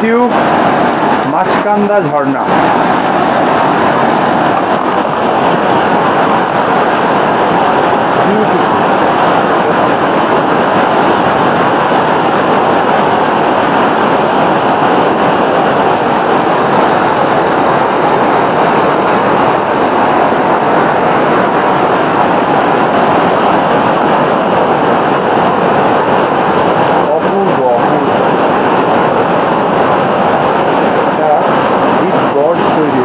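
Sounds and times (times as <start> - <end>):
waterfall rushing over rock: 0.0 - 33.0.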